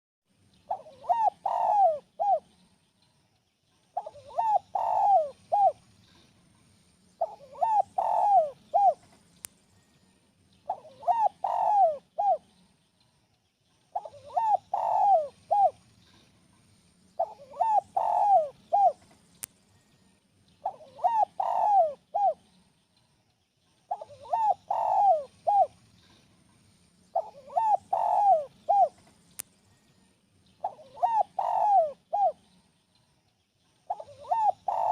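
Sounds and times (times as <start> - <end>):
dove cooing: 0.7 - 2.5, 4.0 - 5.8, 7.2 - 9.0, 10.7 - 12.5, 13.9 - 15.8, 17.2 - 19.0, 20.6 - 22.5, 23.9 - 25.8, 27.1 - 29.0, 30.6 - 32.6, 33.9 - 34.9.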